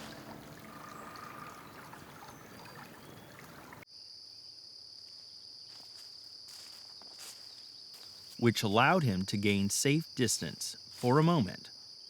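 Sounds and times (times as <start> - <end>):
stream water rushing: 0.0 - 3.8
crickets trilling: 0.0 - 12.0.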